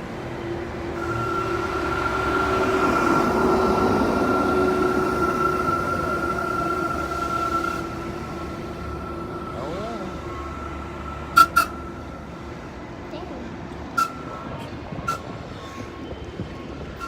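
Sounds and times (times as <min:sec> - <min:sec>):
train passing: 0:00.0 - 0:17.0
high whine: 0:01.0 - 0:13.0
low hum: 0:01.0 - 0:13.1.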